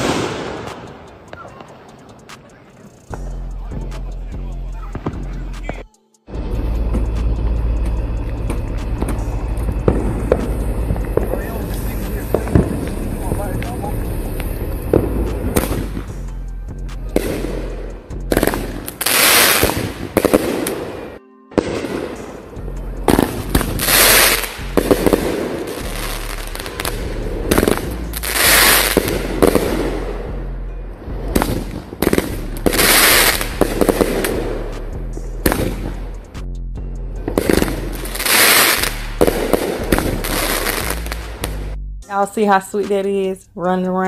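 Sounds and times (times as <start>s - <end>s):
fireworks popping and crackling: 0.0s - 3.0s, 6.6s - 16.1s, 18.3s - 22.1s, 23.1s - 30.1s, 31.3s - 36.0s, 37.3s - 41.6s
fireworks hissing bursts: 0.0s - 3.2s, 5.6s - 16.2s, 17.1s - 22.4s, 23.1s - 30.2s, 31.3s - 34.6s, 37.4s - 41.7s
background music: 0.0s - 44.0s.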